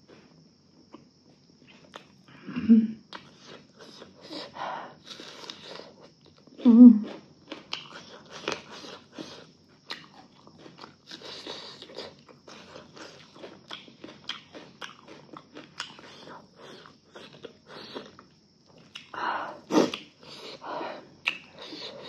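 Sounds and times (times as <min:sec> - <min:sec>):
person chewing food: 0:00.1 - 0:02.2, 0:03.1 - 0:22.0
person humming: 0:06.6 - 0:07.0.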